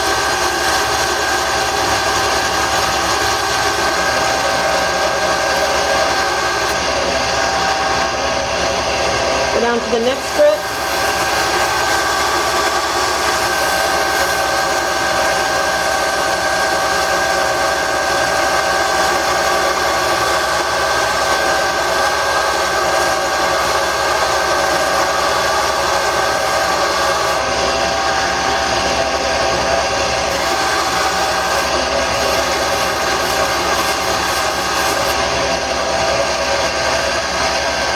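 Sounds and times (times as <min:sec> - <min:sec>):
wood lathe motor whine: 0:00.0 - 0:37.9
sandpaper on spinning wood: 0:09.6 - 0:27.4, 0:30.3 - 0:35.2.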